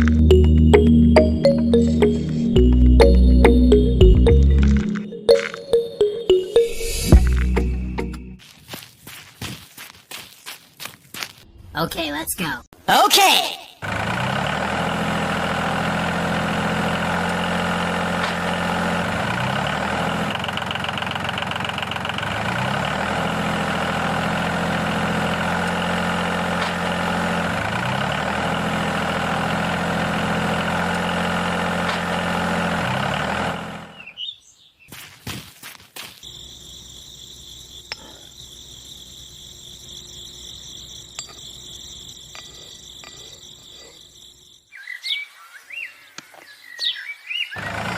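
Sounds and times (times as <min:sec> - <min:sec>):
tractor engine running: 0:00.0 - 0:08.5, 0:13.8 - 0:34.1, 0:36.2 - 0:44.6, 0:47.6 - 0:47.9
birds chirping: 0:33.8 - 0:35.0, 0:36.3 - 0:47.9
insects chirping: 0:36.0 - 0:47.8.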